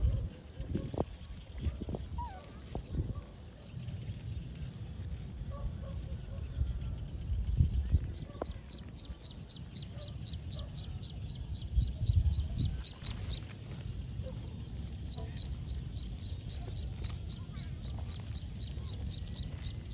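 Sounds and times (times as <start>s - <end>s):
bird chirping: 5.5s - 19.9s.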